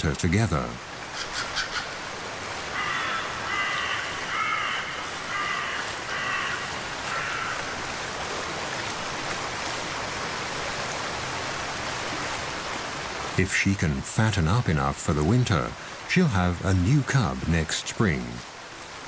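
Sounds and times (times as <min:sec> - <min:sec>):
rain hiss: 0:00.0 - 0:19.0
bird calling: 0:01.1 - 0:02.0, 0:02.7 - 0:07.8.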